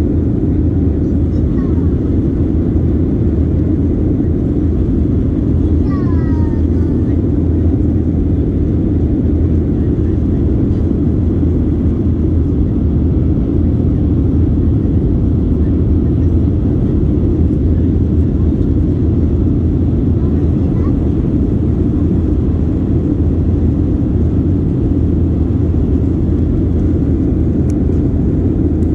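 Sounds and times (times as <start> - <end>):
airliner cabin engine roar: 0.0 - 28.9.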